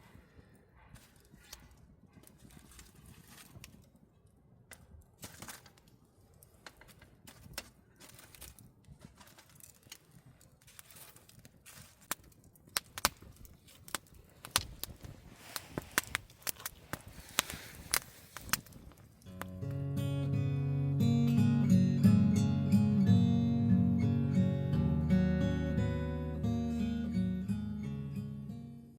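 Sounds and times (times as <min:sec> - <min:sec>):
campfire crackling and popping: 0:00.2 - 0:27.6.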